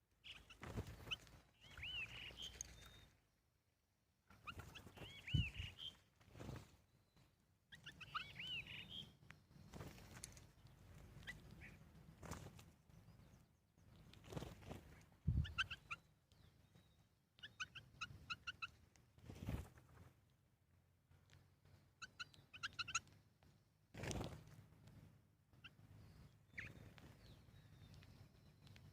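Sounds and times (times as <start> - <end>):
bird chirping: 0.2 - 3.2, 4.3 - 12.0, 15.3 - 18.9, 21.7 - 23.2, 25.5 - 28.9.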